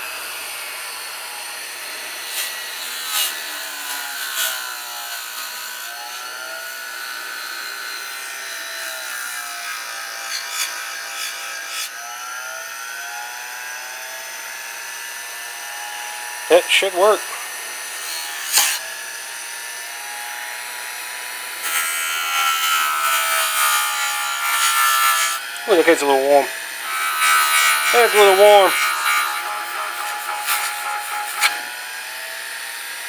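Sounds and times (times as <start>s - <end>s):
sharp scrapes on grinder: 0.0s - 12.0s, 15.8s - 19.1s, 21.5s - 32.4s
grinder spinning: 0.0s - 33.0s.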